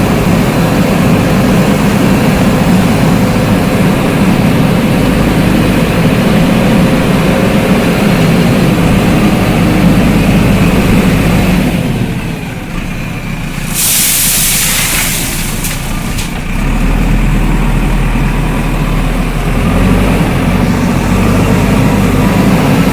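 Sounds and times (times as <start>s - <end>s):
diesel engine running: 0.0s - 22.9s
loud hiss: 13.5s - 16.4s.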